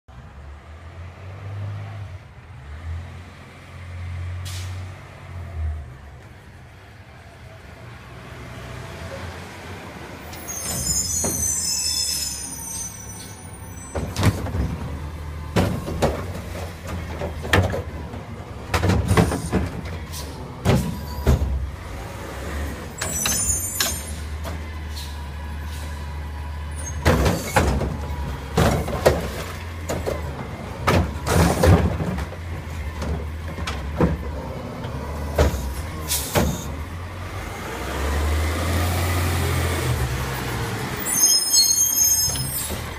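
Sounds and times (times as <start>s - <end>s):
recycling banging into hopper: 13.9s - 21.7s, 26.9s - 34.4s.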